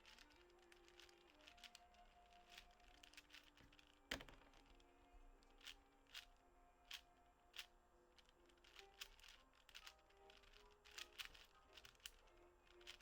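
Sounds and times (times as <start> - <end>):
puzzle cube layers clicking: 8.6 - 13.0.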